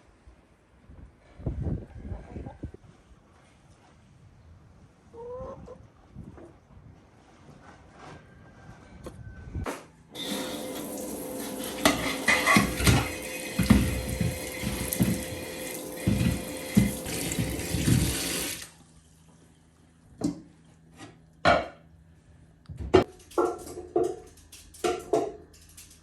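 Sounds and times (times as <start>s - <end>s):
tap water running into sink: 10.2s - 18.7s
dishes and pots knocking: 11.6s - 18.4s.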